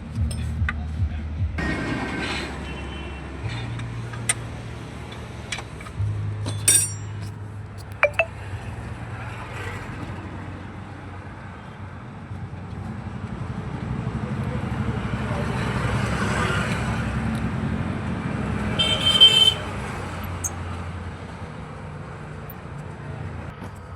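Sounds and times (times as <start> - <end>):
tools clinking on metal: 6.5 - 7.3, 7.9 - 8.3
ringing metal strike: 6.6 - 7.2, 8.0 - 8.3.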